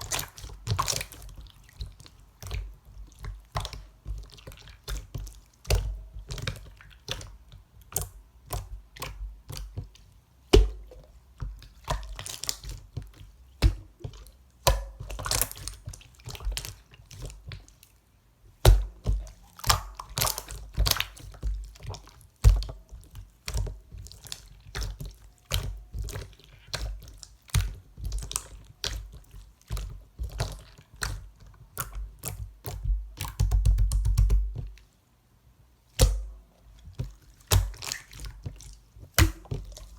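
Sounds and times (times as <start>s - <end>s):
slime squished by hand: 0.0s - 17.8s, 18.5s - 34.8s, 35.9s - 39.9s
sticky clicks and wet pops: 18.6s - 34.8s.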